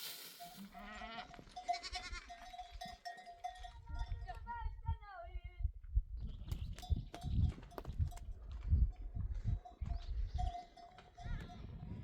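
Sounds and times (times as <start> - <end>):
livestock bell ringing: 0.4 - 4.4, 9.6 - 12.0
faint bleat: 0.7 - 2.3.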